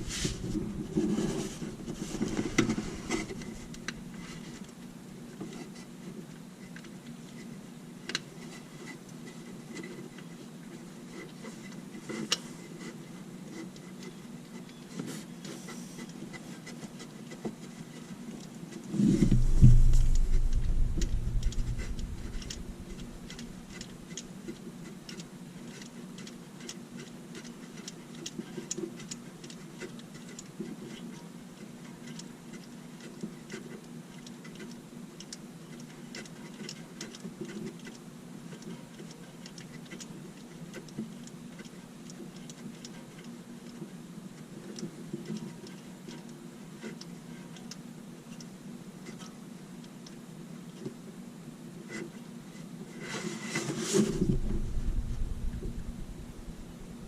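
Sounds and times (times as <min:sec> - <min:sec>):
low running hum: 0:00.0 - 0:04.2, 0:19.0 - 0:24.5, 0:54.0 - 0:57.0
fast light ticking: 0:19.4 - 0:24.3.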